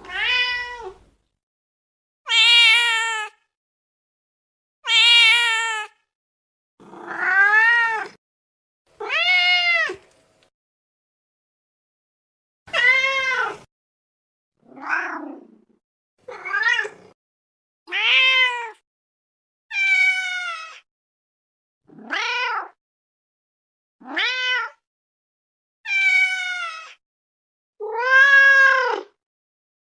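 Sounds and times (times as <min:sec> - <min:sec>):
cat meowing: 0:00.0 - 0:01.0, 0:02.3 - 0:03.5, 0:04.8 - 0:06.0, 0:06.8 - 0:08.2, 0:09.0 - 0:10.0, 0:12.7 - 0:13.7, 0:14.7 - 0:15.6, 0:16.2 - 0:17.1, 0:17.9 - 0:18.8, 0:19.7 - 0:20.8, 0:21.9 - 0:22.8, 0:24.0 - 0:24.8, 0:25.9 - 0:27.0, 0:27.8 - 0:29.2.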